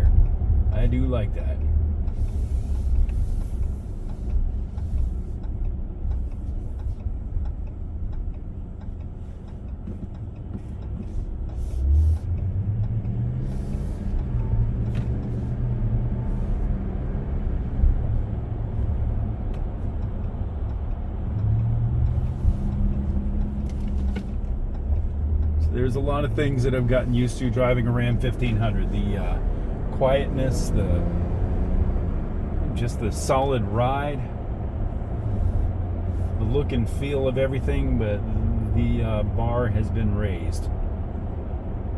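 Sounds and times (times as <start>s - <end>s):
road and engine rumble: 0.0s - 41.9s.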